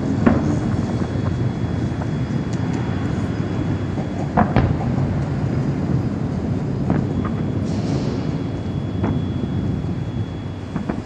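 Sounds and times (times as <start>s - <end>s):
sharp firework bangs: 0.0s - 1.3s, 3.8s - 11.0s
fireworks booming: 0.0s - 11.0s.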